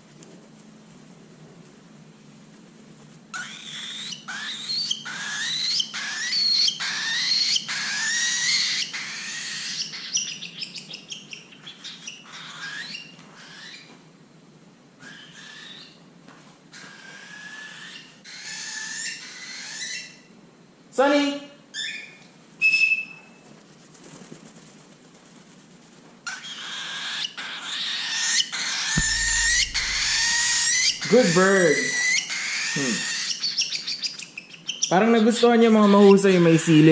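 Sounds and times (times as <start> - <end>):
cockatiel shrill calls: 3.3 - 13.9, 15.0 - 16.0, 16.7 - 20.2, 21.7 - 23.2, 26.3 - 35.0.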